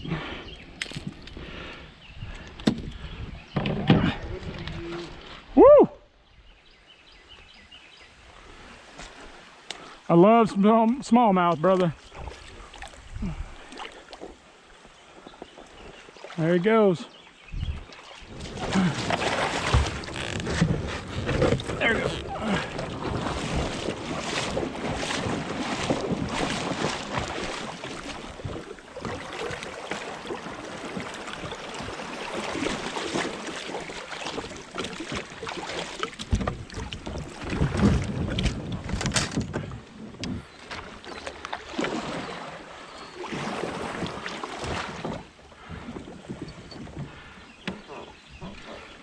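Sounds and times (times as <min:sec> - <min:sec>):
wind buffeting microphone: 0:01.0 - 0:05.6, 0:12.0 - 0:13.7, 0:17.4 - 0:29.4, 0:36.3 - 0:40.6
creek water rushing: 0:08.1 - 0:38.3.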